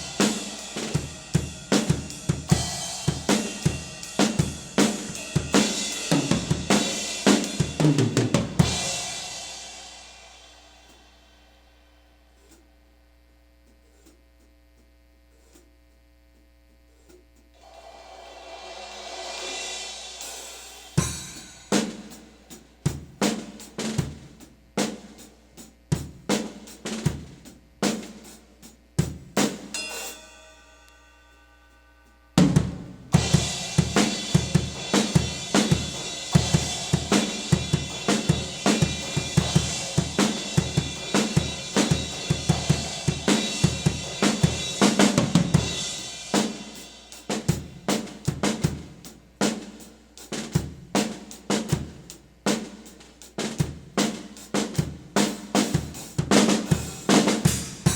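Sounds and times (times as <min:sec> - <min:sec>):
cymbal ringing: 0:00.0 - 0:07.8, 0:08.5 - 0:12.5, 0:17.6 - 0:22.5, 0:29.6 - 0:32.5, 0:33.2 - 0:47.2
drum beat with cymbal wash: 0:00.0 - 0:12.9, 0:17.0 - 0:57.9
drum and cymbal strikes: 0:00.0 - 0:13.0, 0:16.9 - 0:57.9.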